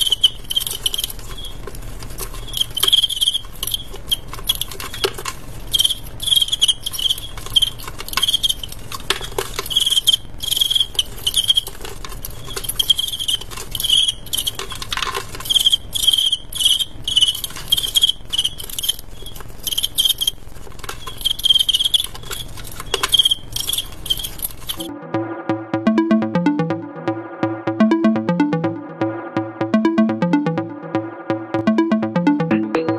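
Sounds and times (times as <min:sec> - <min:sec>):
crickets chirping: 0:00.0 - 0:01.6, 0:02.2 - 0:05.1, 0:05.7 - 0:11.7, 0:12.4 - 0:14.6, 0:15.4 - 0:24.8.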